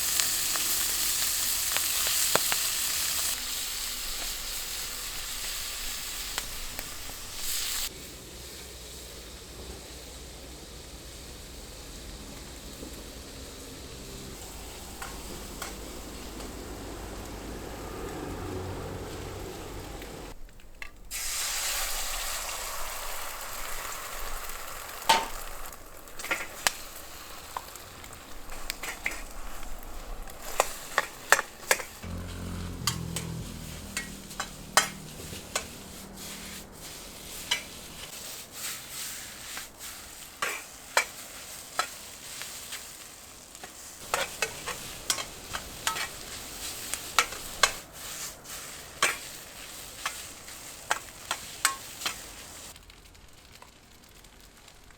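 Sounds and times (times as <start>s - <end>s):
rice sizzling in a pan: 0.0s - 54.9s
spatula scraping a pan: 31.3s - 43.0s, 43.6s - 52.7s.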